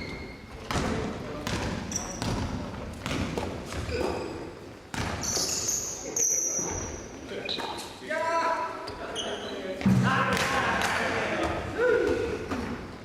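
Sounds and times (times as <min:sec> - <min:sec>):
ball thumping on hall floor: 0:00.0 - 0:05.6, 0:09.8 - 0:13.0.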